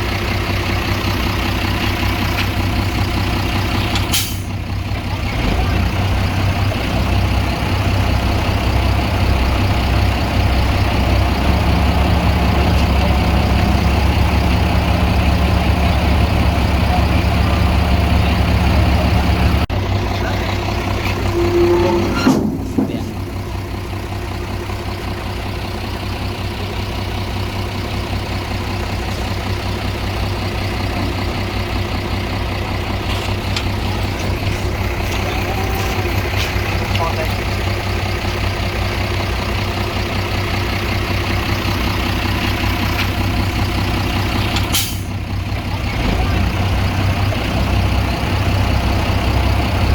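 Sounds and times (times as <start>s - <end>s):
diesel engines running: 0.0s - 49.9s
brief tone: 21.2s - 22.2s.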